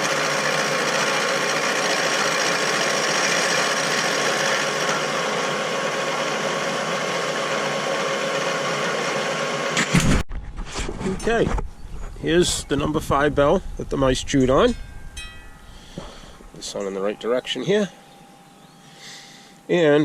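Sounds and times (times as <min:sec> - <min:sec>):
machine running steadily: 0:00.0 - 0:10.2.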